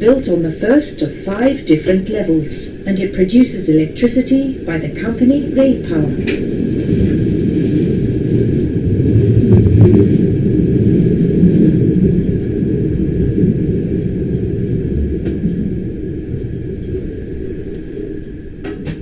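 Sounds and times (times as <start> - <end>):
train wheels rumbling on track: 0.0 - 19.0
faint light ticks: 11.7 - 15.7, 16.4 - 19.0.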